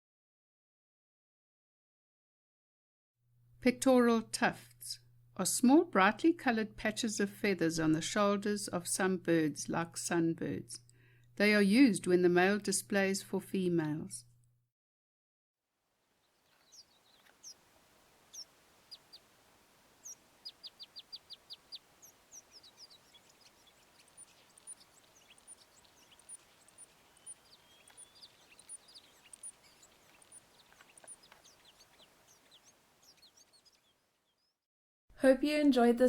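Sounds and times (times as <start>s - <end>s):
faint birdsong: 16.0s - 34.6s
thin very high bird notes: 16.3s - 34.4s.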